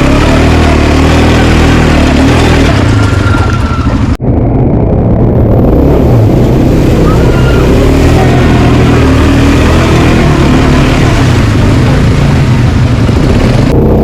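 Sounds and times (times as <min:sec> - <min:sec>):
continuous rushing noise: 0:00.0 - 0:14.0
quad bike engine running: 0:00.0 - 0:14.0.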